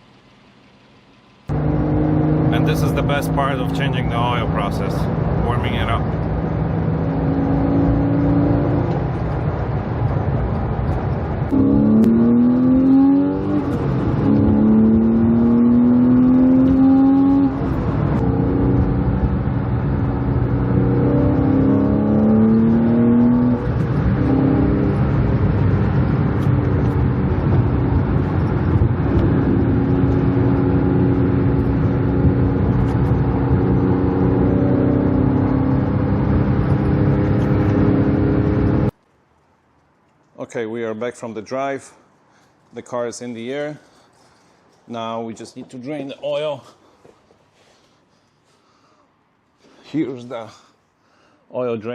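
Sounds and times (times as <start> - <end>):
car engine revving through gears: 1.5 - 10.6, 11.4 - 38.9.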